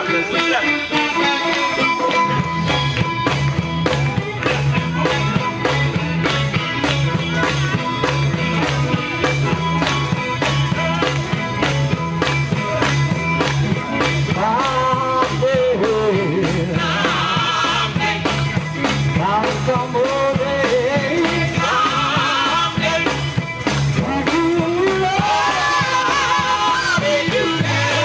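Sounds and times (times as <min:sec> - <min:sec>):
gospel band playing live: 0:00.0 - 0:28.0
singing: 0:14.3 - 0:18.6, 0:19.2 - 0:23.4, 0:24.0 - 0:28.0.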